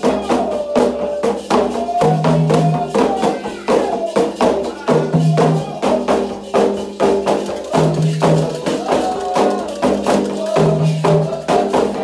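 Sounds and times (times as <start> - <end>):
chanting voices: 0.0 - 12.0
hand drums beating: 0.0 - 12.0
ringing percussion: 0.0 - 12.0.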